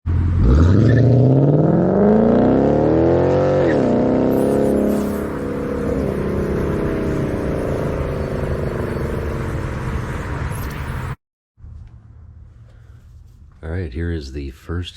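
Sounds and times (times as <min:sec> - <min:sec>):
car engine starting and revving: 0:00.1 - 0:11.2.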